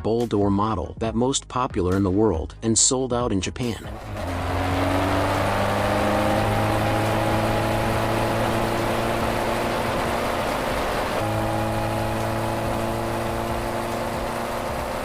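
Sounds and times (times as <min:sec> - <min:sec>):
motorcycle engine idling: 0:04.8 - 0:15.0.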